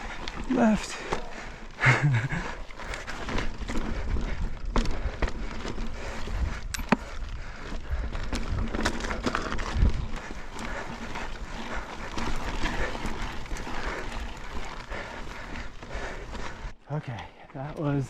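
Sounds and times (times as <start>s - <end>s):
bike chain clicks and knocks: 0.0s - 16.7s
bike tyre noise: 0.0s - 18.0s.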